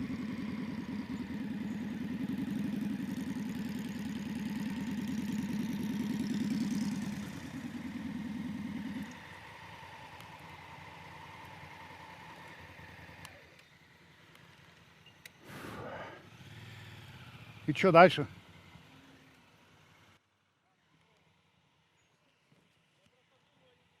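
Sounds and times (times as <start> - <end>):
motorcycle engine running: 0.0 - 15.0, 16.3 - 20.2.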